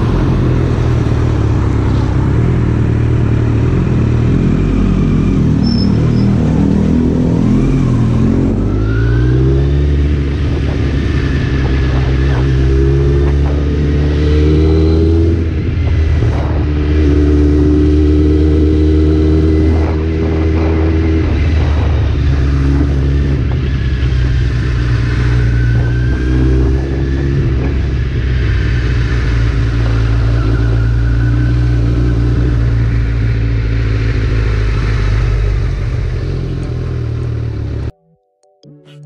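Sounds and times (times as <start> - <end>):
motorcycle engine running: 0.0 - 8.7, 9.8 - 31.2.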